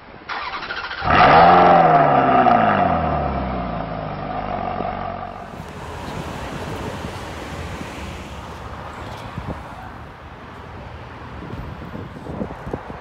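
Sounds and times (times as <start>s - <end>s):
car engine revving: 1.0s - 10.2s.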